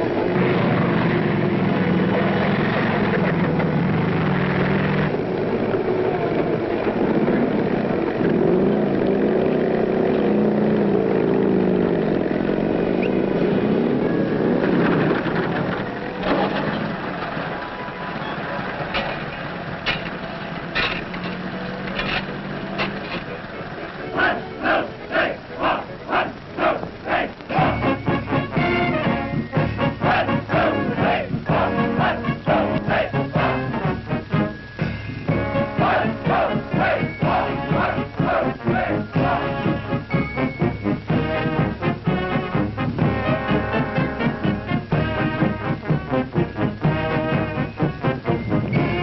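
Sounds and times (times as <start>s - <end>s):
heavy vehicle engines droning: 0.0s - 49.0s
sharp rhythmic pulses: 14.0s - 49.0s.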